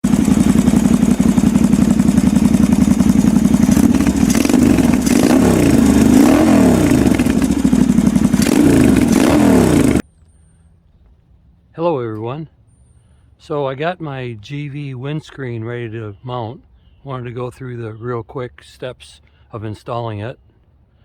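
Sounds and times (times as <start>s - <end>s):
motorcycle engine revving: 0.0s - 10.1s.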